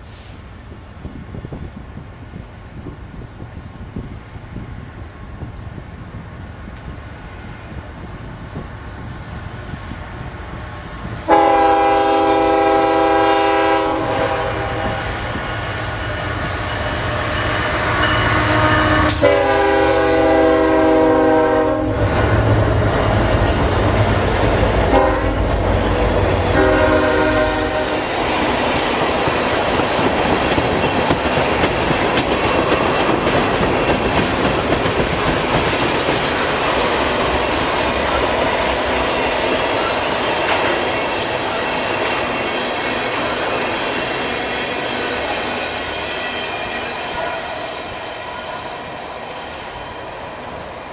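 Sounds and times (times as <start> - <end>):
train rumble: 0.0 - 50.9
locomotive air horn blasts: 11.2 - 15.4, 16.0 - 22.8, 24.8 - 28.3
train wheels clacking: 22.1 - 50.4.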